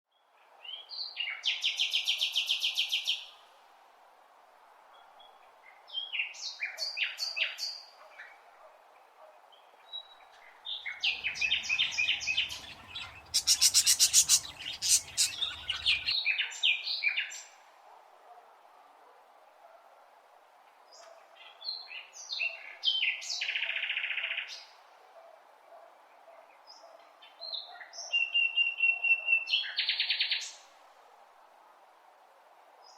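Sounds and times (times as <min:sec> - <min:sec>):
birds calling high notes: 0:11.2 - 0:16.1.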